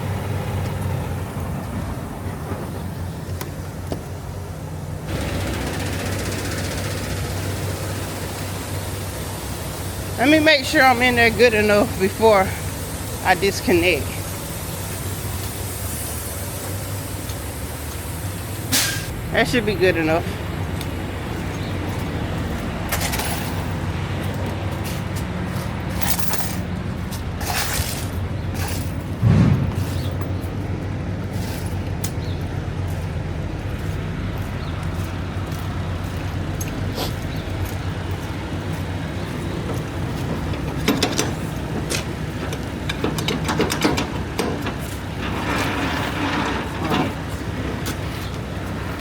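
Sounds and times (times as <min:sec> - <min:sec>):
truck diesel engine idling: 0:00.0 - 0:49.0
short hissy bursts: 0:07.7 - 0:19.1
sharp metallic clicks and clanks: 0:39.6 - 0:48.0.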